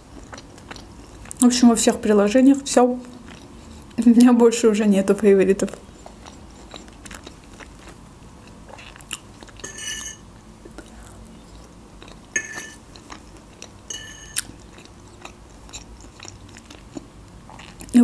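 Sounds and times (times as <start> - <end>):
chewing with wet clicks: 0.1 - 1.4, 3.0 - 4.0, 6.0 - 9.6, 10.6 - 12.3, 12.9 - 18.0.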